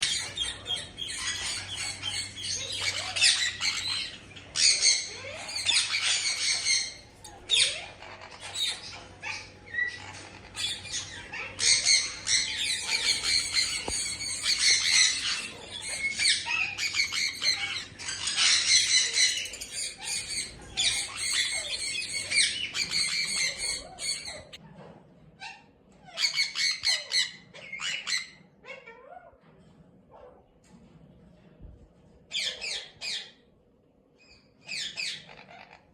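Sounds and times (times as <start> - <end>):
parakeet squawking: 0.0 - 24.6.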